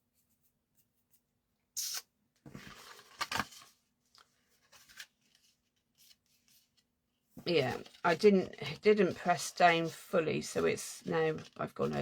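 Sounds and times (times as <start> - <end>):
paper rustling: 2.5 - 12.0.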